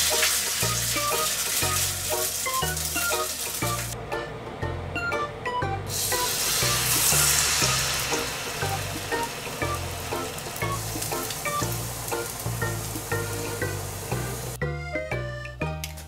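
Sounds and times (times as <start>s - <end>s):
battered food sizzling in hot oil: 0.0s - 4.0s, 5.9s - 14.6s
light background music: 0.0s - 16.0s.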